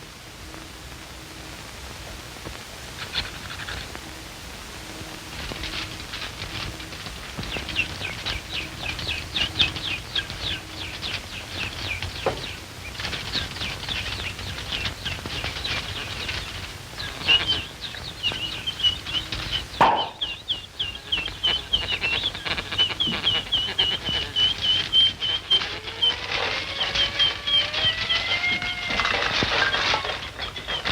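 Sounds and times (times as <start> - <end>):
film soundtrack hiss: 0.0 - 30.9
rapid bird-like chirping: 5.0 - 30.9.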